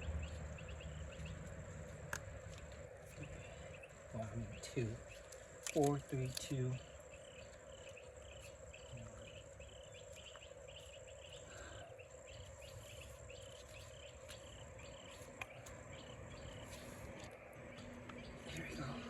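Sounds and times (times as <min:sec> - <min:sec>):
crickets chirping: 0:00.0 - 0:19.0
steady low hum: 0:00.0 - 0:19.0.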